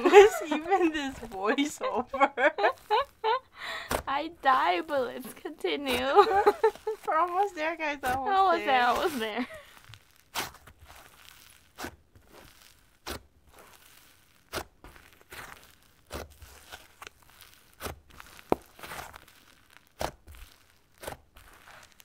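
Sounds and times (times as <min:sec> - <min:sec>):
slime popping and crackling: 0:00.5 - 0:01.9, 0:02.6 - 0:22.0
slime squishing: 0:02.6 - 0:22.0.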